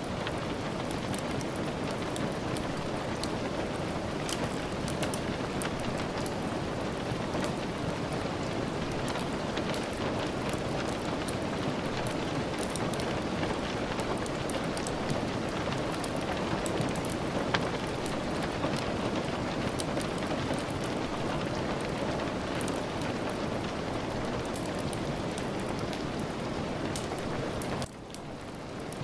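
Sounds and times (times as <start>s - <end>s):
steady rain hissing: 0.0s - 29.0s
ticks of raindrops: 0.0s - 29.0s.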